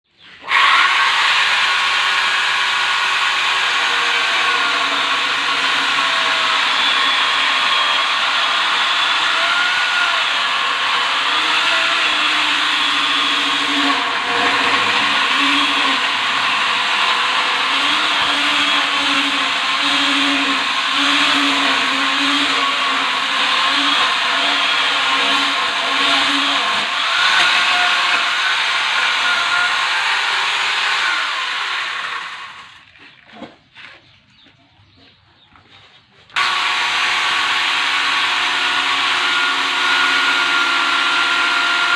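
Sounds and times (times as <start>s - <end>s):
electric mini chainsaw running: 0.5s - 32.9s, 36.3s - 41.9s.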